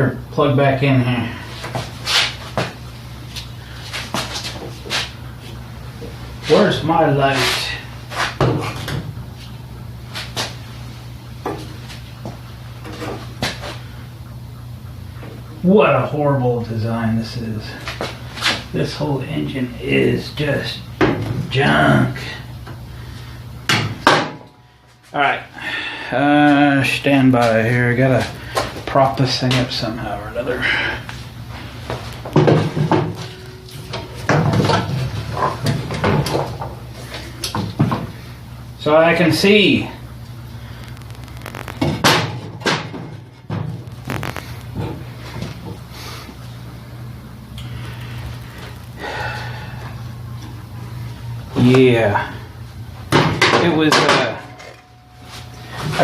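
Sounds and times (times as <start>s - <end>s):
steady low hum: 0.0s - 56.0s
objects knocking and scraping: 31.9s - 36.8s, 41.3s - 45.8s.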